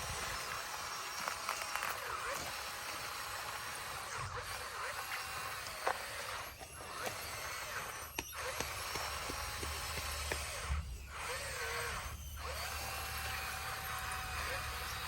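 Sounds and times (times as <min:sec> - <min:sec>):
bulldozer engine droning: 0:00.0 - 0:15.0
high squeaks: 0:04.1 - 0:15.0.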